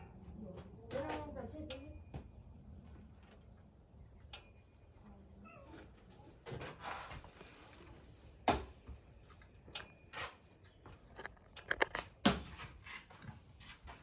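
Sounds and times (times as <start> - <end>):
knocks and clicks of objects handled: 9.3 - 13.3.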